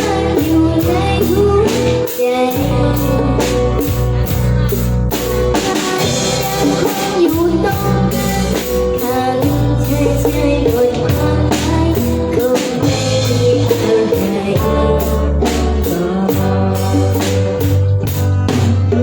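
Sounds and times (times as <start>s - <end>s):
bass notes: 0.0s - 19.0s
drum kit beat: 0.0s - 19.0s
electric guitar: 0.0s - 19.0s
person singing: 0.0s - 19.0s.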